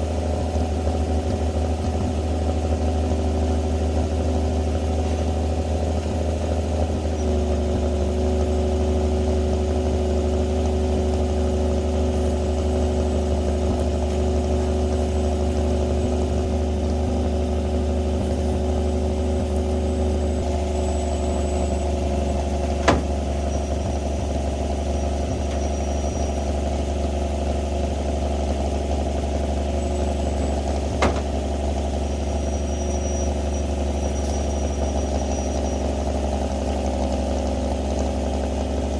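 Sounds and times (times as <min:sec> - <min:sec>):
truck engine running: 0:00.0 - 0:38.9
sharp knocks: 0:22.6 - 0:23.3.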